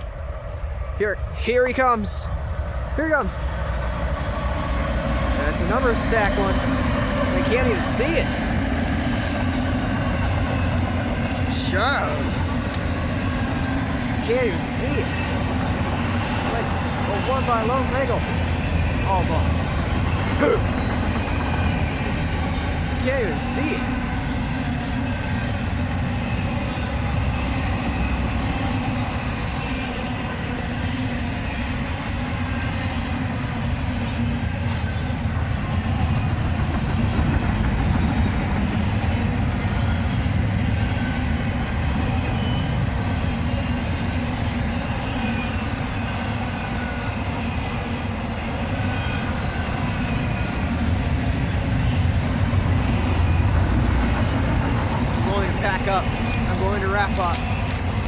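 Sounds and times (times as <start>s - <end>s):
freight train wheels rumbling: 0.0s - 58.0s
wheel squeals: 25.8s - 38.3s, 40.6s - 58.0s.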